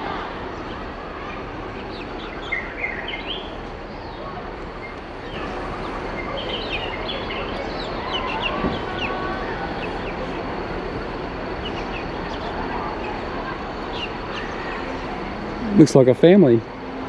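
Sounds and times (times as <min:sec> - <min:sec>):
outdoor background noise: 0:00.0 - 0:17.0
birds chirping: 0:00.6 - 0:16.8.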